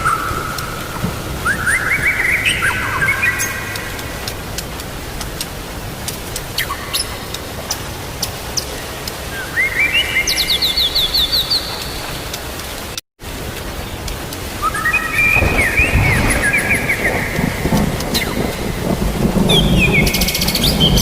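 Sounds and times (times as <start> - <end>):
rain hiss: 0.0 - 21.0
bird whistling falling notes: 1.4 - 3.8, 14.6 - 18.6
low rumble of thunder: 14.8 - 21.0.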